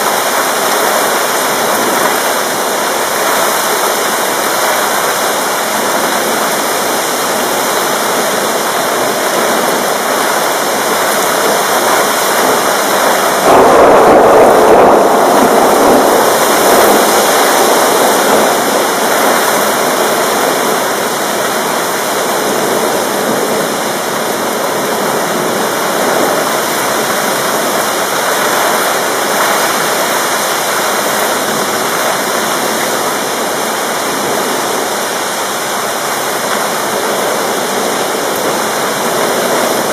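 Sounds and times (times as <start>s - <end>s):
heavy rain pouring: 0.0s - 39.9s
low rumble: 13.4s - 17.4s.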